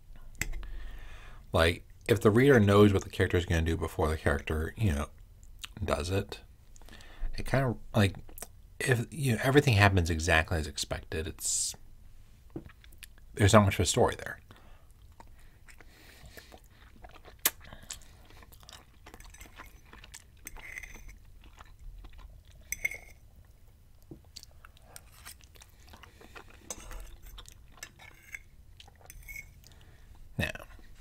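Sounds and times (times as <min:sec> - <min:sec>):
person chewing food: 0:14.5 - 0:31.0
metal fork scraping ceramic plate: 0:20.5 - 0:21.2, 0:26.7 - 0:29.6.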